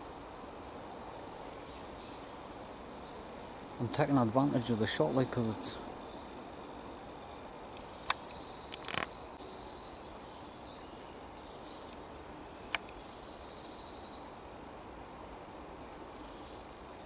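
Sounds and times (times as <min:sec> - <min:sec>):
distant bird calls: 0:00.0 - 0:17.0.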